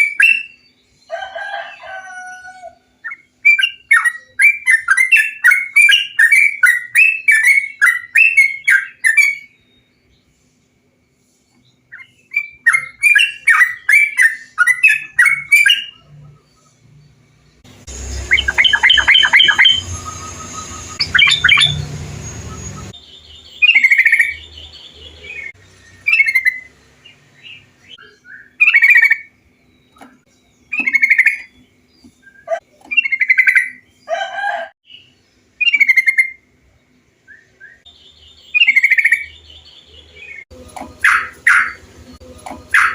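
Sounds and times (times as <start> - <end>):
bulbul chirping: 17.8 - 26.7, 27.4 - 29.3, 29.9 - 33.8, 40.7 - 42.9.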